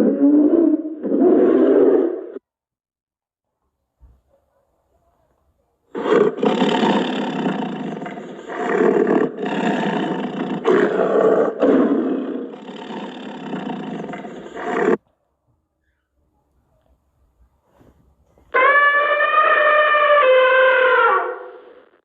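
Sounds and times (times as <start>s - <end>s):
animal roaring: 6.0s - 15.0s.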